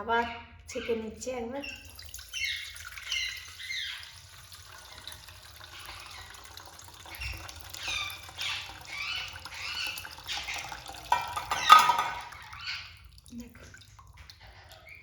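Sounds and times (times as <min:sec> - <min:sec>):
water pouring and trickling: 0:01.6 - 0:15.0
parrot squawking: 0:07.1 - 0:13.0.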